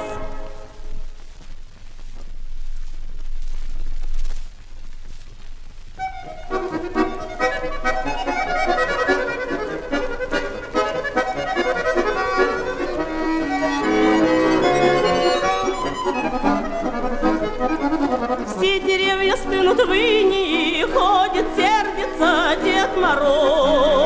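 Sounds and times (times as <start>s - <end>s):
person singing: 0.0s - 0.6s, 18.4s - 24.0s
folk-style instrumental music: 0.0s - 1.6s, 5.8s - 24.0s.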